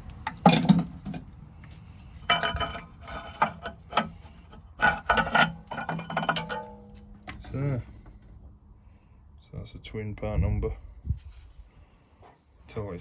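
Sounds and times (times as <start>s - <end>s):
metal parts clinking and clattering: 0.0s - 1.3s, 2.2s - 4.1s, 4.8s - 7.0s.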